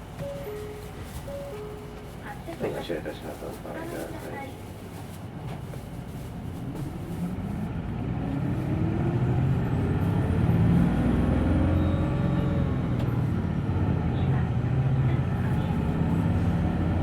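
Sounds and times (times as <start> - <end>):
bus diesel engine revving: 7.1 - 17.0.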